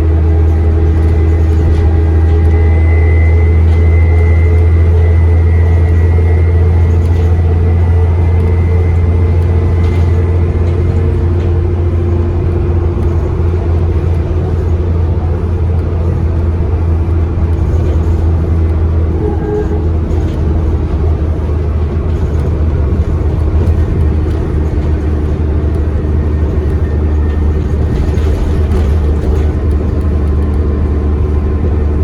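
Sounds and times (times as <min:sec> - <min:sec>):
diesel bus engine droning: 0:00.0 - 0:32.0
turbocharger whistle: 0:02.4 - 0:06.9.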